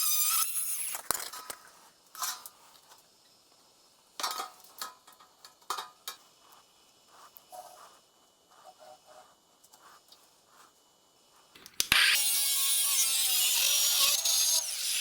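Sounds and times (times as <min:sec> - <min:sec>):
power tool whirring: 0:11.8 - 0:15.0.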